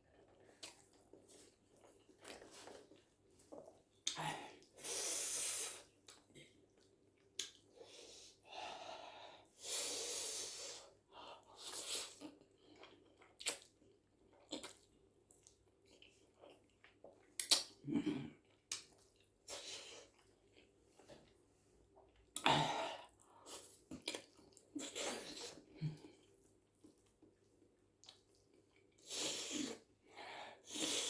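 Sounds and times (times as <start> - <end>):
chewing and mouth noises: 11.6 - 17.8, 23.2 - 29.1.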